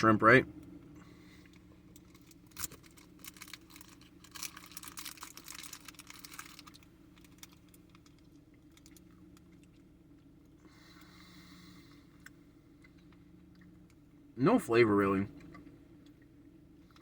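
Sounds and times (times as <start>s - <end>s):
chewing wet clicks and smacks: 12.2s - 14.1s.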